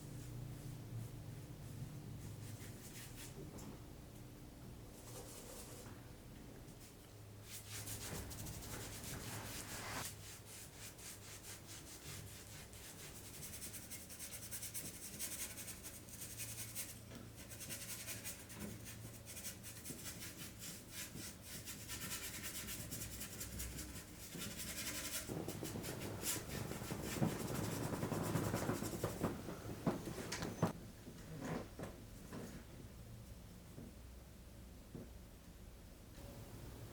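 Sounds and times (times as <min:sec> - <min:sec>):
rubbing strokes on a hard surface: 0:05.0 - 0:05.9, 0:06.8 - 0:29.4.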